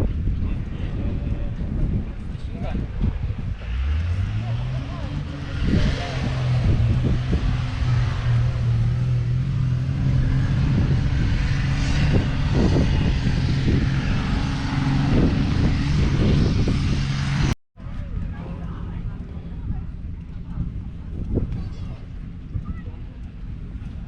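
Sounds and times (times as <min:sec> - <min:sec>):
tractor diesel engine droning: 0:03.6 - 0:17.6.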